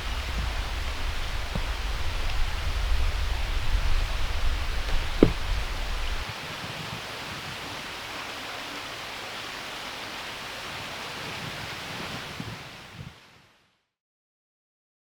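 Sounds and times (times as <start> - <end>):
low knocks: 0.0 - 6.2
steady rushing outdoor noise: 0.0 - 13.5.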